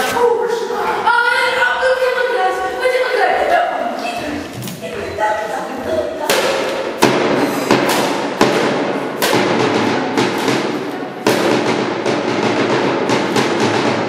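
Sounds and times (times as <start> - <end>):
drum beaten with wooden sticks: 6.3 - 14.0.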